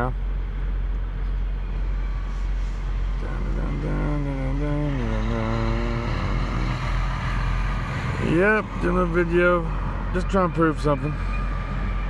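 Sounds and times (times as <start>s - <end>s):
person holding a wavering vocal sound: 3.2s - 7.2s.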